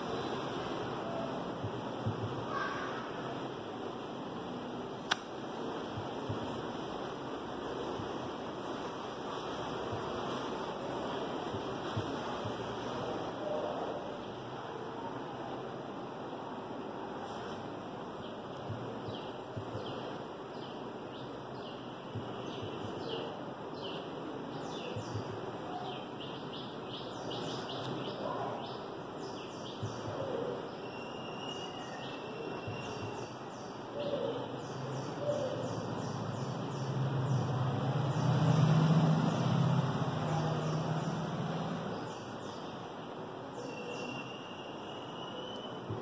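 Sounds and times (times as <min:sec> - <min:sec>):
steady background hiss: 0:00.0 - 0:46.0
birds chirping: 0:18.1 - 0:45.9.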